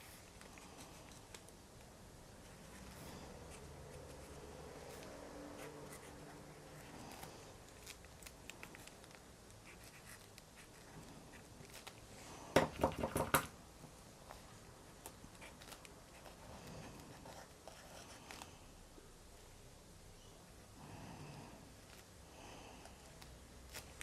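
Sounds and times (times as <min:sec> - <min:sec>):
pen scratching on paper: 0:02.5 - 0:07.2, 0:09.6 - 0:11.5, 0:15.4 - 0:18.5.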